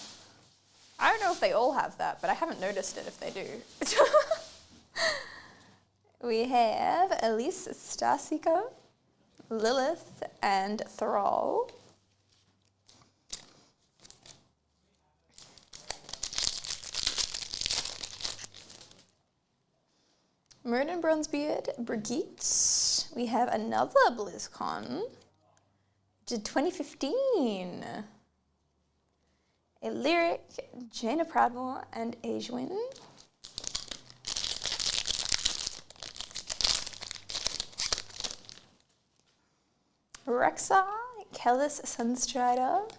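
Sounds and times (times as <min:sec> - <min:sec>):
wrapper crinkling and tearing: 0:00.1 - 0:04.6, 0:11.7 - 0:14.4, 0:15.3 - 0:19.2, 0:32.9 - 0:39.0.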